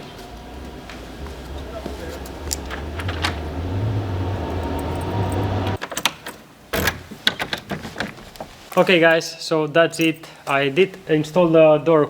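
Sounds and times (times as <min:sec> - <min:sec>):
motor humming: 0:00.0 - 0:05.8.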